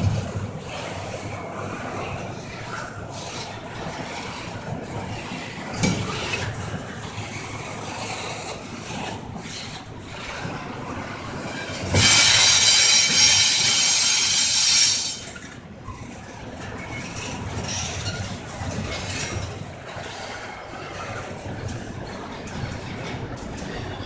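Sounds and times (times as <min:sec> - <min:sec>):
train cars rumbling on rails: 0:00.0 - 0:24.0
steel wheel squeal: 0:11.7 - 0:15.6.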